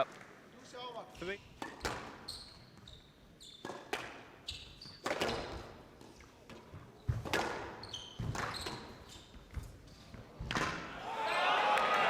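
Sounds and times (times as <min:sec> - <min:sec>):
shoes squeaking on court floor: 0:01.1 - 0:10.5
squash ball hitting racket and walls: 0:01.5 - 0:10.9.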